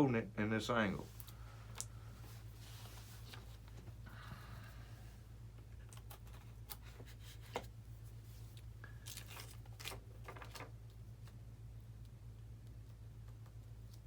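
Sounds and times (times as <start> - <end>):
steady low hum: 0.0 - 14.0
small clicks and rustles: 8.3 - 11.4.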